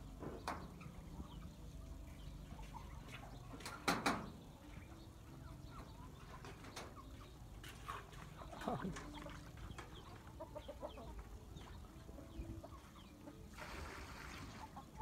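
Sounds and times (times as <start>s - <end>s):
bird calls: 0.0s - 13.5s.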